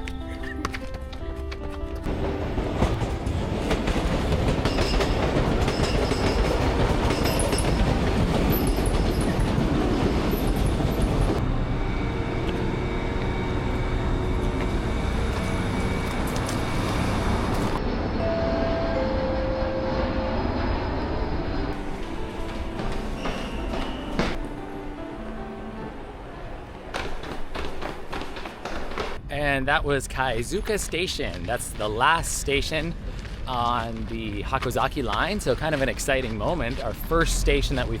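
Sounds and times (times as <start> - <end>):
train wheels rumbling and rattling: 1.4 - 17.8, 26.4 - 29.3, 30.0 - 38.0
wheel squeals: 22.8 - 24.4.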